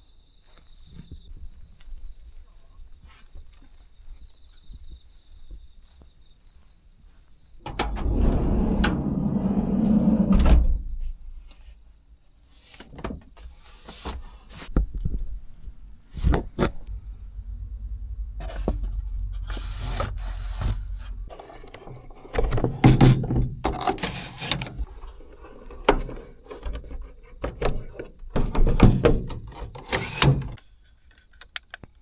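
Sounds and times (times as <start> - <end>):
knocks and clicks: 7.6 - 10.6
sliding door rolling: 7.7 - 11.0, 16.5 - 22.1
door stopping with a thud: 7.7 - 11.2
insect chirring: 14.9 - 21.3.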